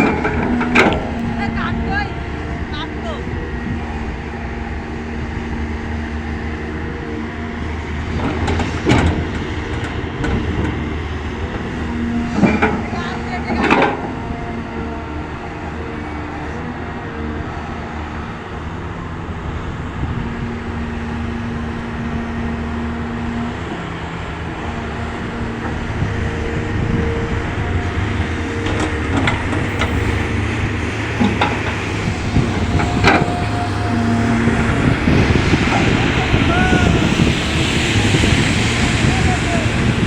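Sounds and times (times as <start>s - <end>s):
excavator diesel engine running: 0.0s - 40.0s
held tones: 28.4s - 36.3s.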